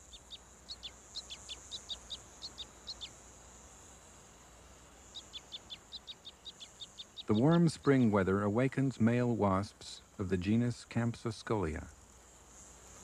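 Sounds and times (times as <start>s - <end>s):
small bird chirping: 0.0s - 3.7s, 4.9s - 8.3s
high-pitched insect trill: 0.0s - 9.1s.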